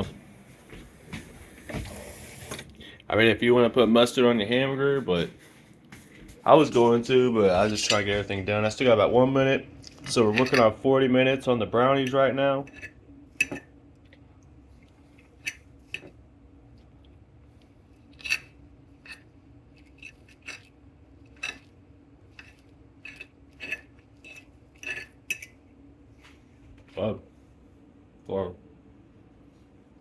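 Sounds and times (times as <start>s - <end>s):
steady low hum: 0.0s - 30.0s
utensils and dishes clinking: 7.6s - 8.4s, 9.9s - 10.8s, 12.0s - 13.7s, 21.3s - 21.7s.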